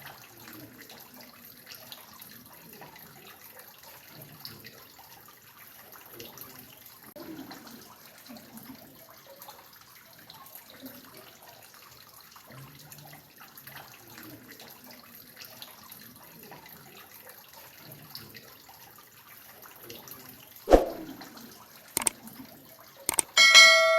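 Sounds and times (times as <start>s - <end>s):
water dripping and trickling: 0.0s - 19.8s
sharp clicks: 23.1s - 23.4s.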